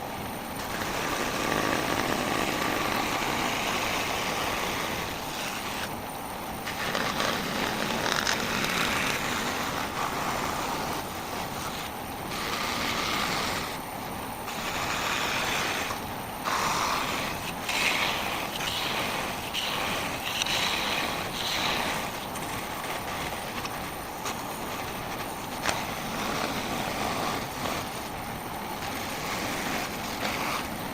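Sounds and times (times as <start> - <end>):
power saw cutting wood: 6.6 - 13.9, 14.5 - 28.1.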